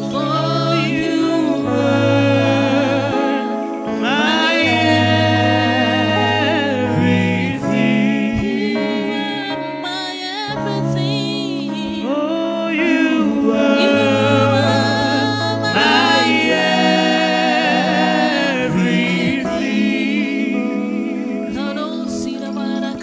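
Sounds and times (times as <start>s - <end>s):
person singing with vibrato: 0.0s - 23.0s
sustained keyboard chords: 0.0s - 23.0s.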